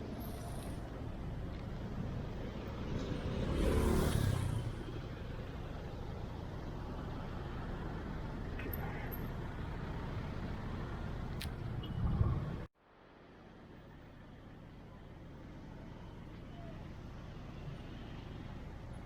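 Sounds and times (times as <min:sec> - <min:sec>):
traffic engine rumble: 0:00.0 - 0:19.0
vehicle passing close: 0:02.6 - 0:05.0.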